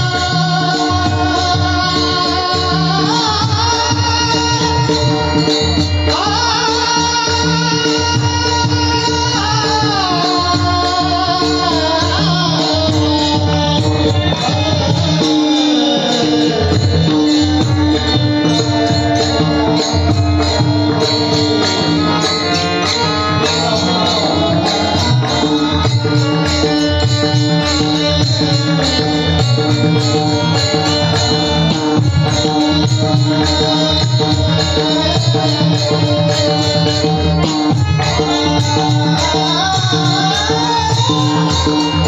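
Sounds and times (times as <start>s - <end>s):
jingling percussion: 0.0s - 42.0s
steady held tones: 12.4s - 42.0s.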